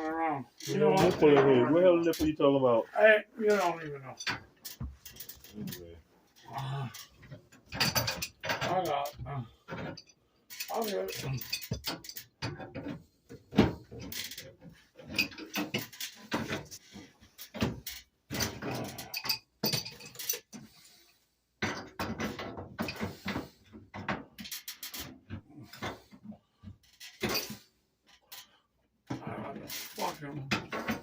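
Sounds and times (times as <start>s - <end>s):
metal plumbing fittings clinking: 7.0s - 20.8s, 26.9s - 28.6s.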